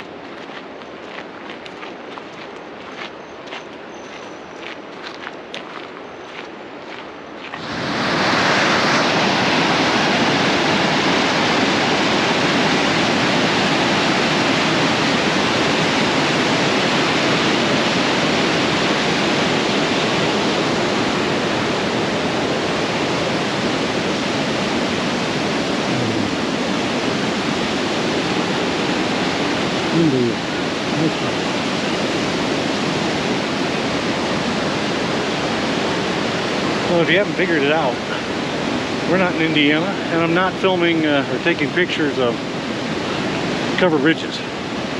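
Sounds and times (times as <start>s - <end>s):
footsteps: 0.0s - 7.8s
waterfall rushing: 7.6s - 44.9s.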